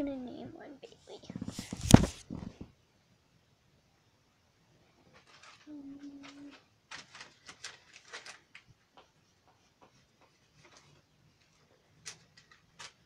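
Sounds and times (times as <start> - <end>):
faint clicks and taps: 5.1 - 13.0.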